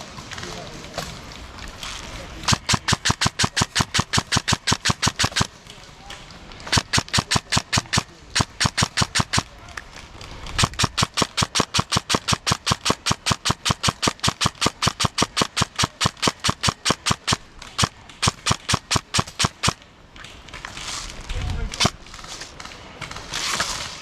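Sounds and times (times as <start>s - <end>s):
airsoft gun rapid firing: 2.4s - 5.6s, 6.6s - 9.6s, 10.5s - 19.8s.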